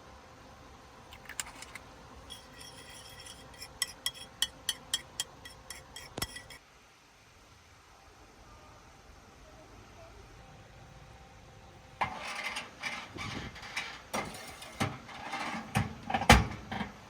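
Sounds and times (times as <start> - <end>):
utensil tapping kitchenware: 1.2 - 6.6.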